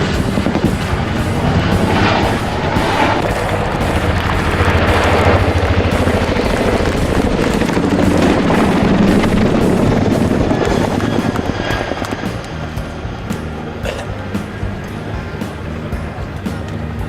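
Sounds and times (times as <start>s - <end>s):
helicopter rotors beating: 0.0s - 17.0s.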